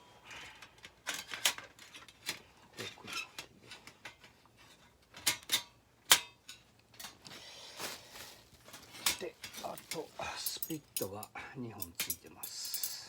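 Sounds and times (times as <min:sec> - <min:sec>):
rustling and scraping: 0:00.7 - 0:05.7, 0:06.5 - 0:11.2
metal clinks and taps: 0:09.0 - 0:13.0.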